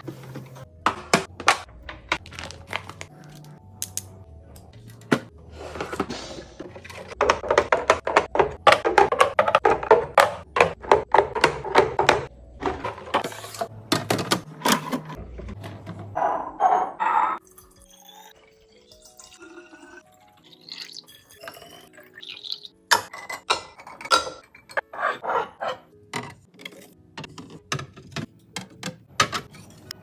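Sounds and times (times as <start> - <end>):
background music: 0.0 - 30.0
packaging clicking and knocking: 0.8 - 4.0, 6.7 - 16.0.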